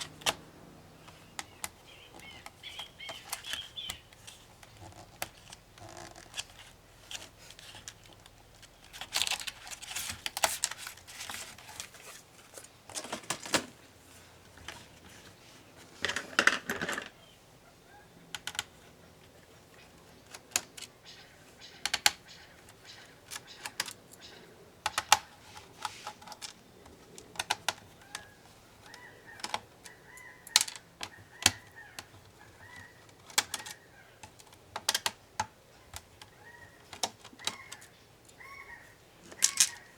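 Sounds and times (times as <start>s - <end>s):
hand tools clicking on plastic: 1.0s - 11.5s, 24.8s - 37.9s
scraping on plastic case: 15.9s - 17.1s.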